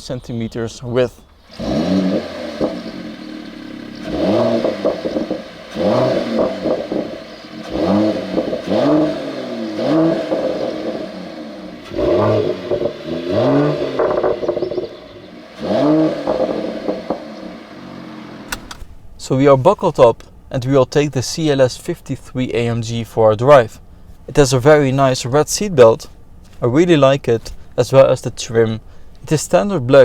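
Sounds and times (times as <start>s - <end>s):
car engine revving: 1.3s - 19.0s.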